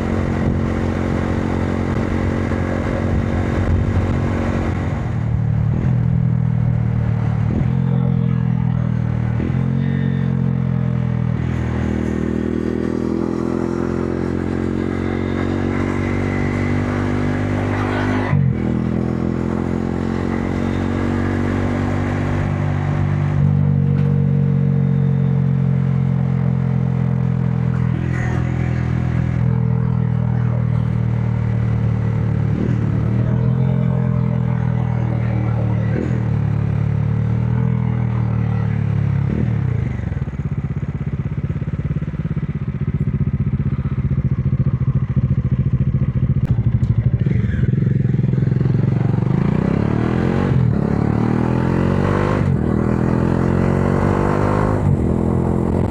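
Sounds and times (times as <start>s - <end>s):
motorcycle engine accelerating: 0.0s - 55.9s.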